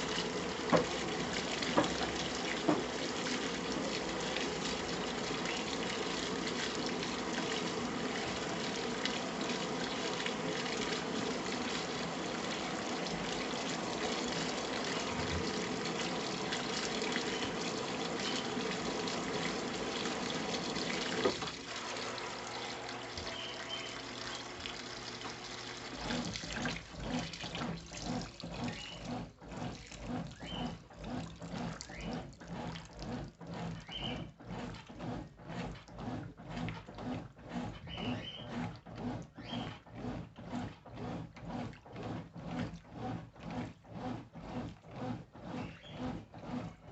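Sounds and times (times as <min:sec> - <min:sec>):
agitator washing strokes: 0:00.0 - 0:46.9
motor humming: 0:00.0 - 0:46.9
washing machine filling with water: 0:00.0 - 0:46.9.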